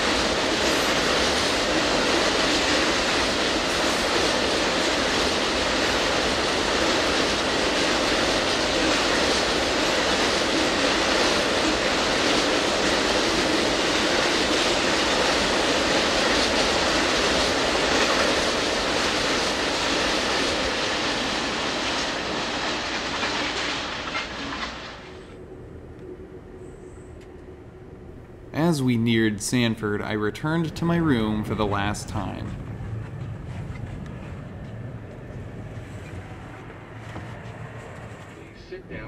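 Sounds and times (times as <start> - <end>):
train wheels on rails: 0.0 - 27.5, 28.1 - 39.0
faint clickety-clack: 32.4 - 38.6.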